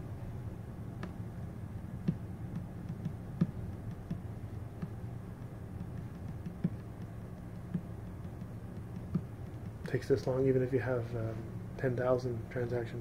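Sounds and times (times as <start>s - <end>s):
faint irregular clicks: 0.8s - 10.6s.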